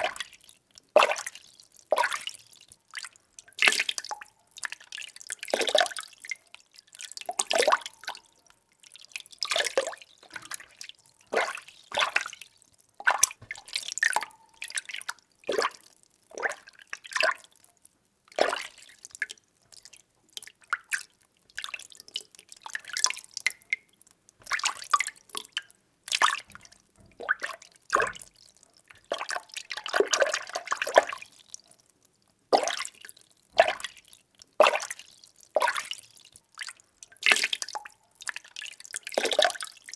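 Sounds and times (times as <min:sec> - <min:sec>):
water sloshing and splashing: 0:09.4 - 0:16.7, 0:24.4 - 0:31.2.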